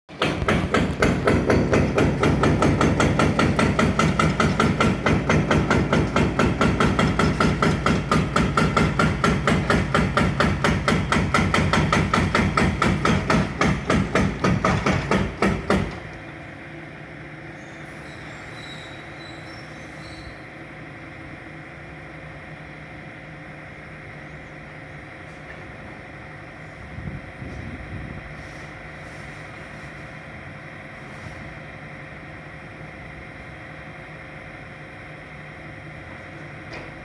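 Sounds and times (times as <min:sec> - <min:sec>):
demolition hammer pounding concrete: 0:00.1 - 0:16.2.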